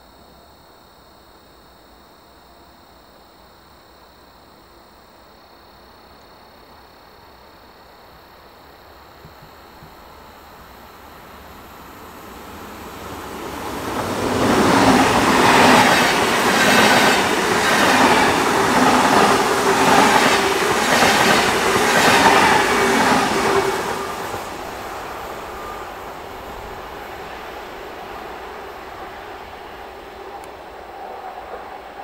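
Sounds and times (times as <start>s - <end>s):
train wheels rushing on rail: 9.2s - 32.0s.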